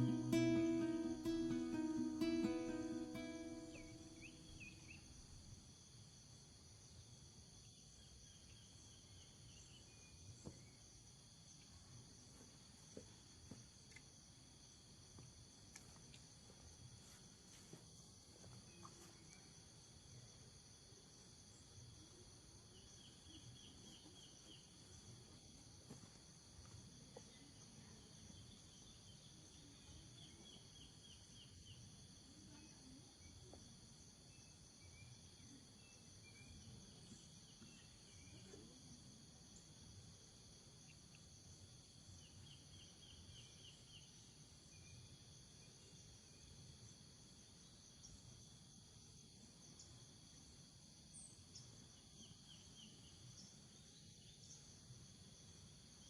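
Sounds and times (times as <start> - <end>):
insects trilling drone: 0.0 - 5.9
insect quick chirps: 0.0 - 56.0.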